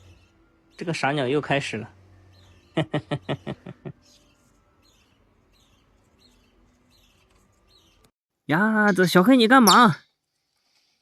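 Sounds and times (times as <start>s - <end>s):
parrot chirping: 8.8s - 10.0s.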